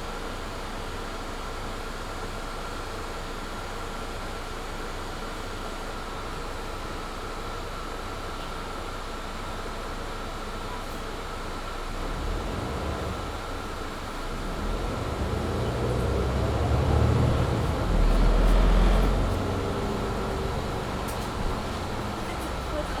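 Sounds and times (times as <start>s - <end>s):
bus engine pulling hard: 10.9s - 23.0s
cabin heater hum: 13.2s - 23.0s.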